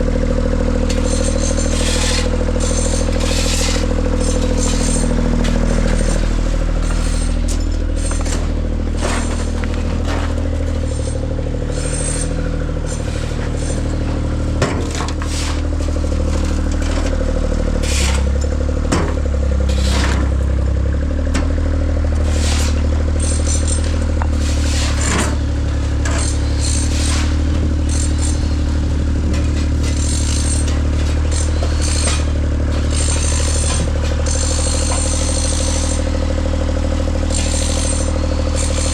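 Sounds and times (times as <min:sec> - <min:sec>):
large engine running: 0:00.0 - 0:38.9
scraping and clattering: 0:00.9 - 0:17.2.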